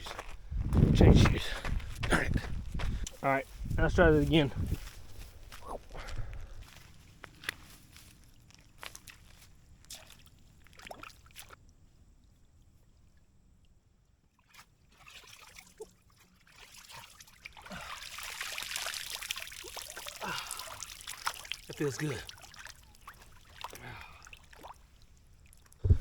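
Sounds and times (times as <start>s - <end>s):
footsteps: 0.0s - 9.5s
water splashing and pouring: 9.9s - 11.6s, 14.4s - 26.0s.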